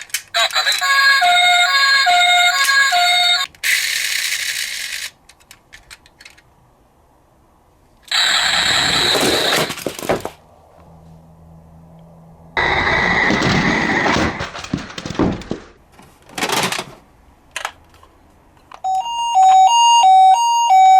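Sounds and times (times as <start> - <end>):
toy cars crashing: 0.0 - 6.4, 8.1 - 10.4, 12.6 - 17.0.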